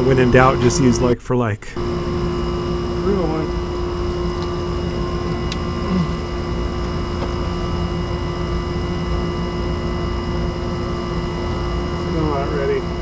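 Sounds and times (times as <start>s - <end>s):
electrical-mechanical hum: 0.0s - 13.0s.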